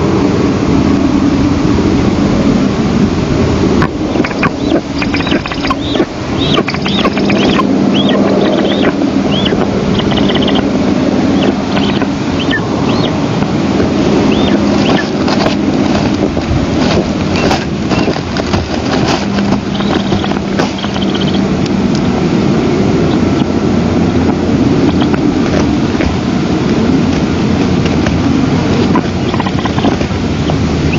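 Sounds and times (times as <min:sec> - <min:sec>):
low steady hum: 0:00.0 - 0:30.9
wind rumbling on microphone: 0:00.0 - 0:30.9
high chirping bird calls: 0:03.8 - 0:15.6, 0:17.3 - 0:18.2, 0:19.2 - 0:21.5, 0:22.6 - 0:23.6, 0:24.7 - 0:25.3, 0:28.9 - 0:30.9.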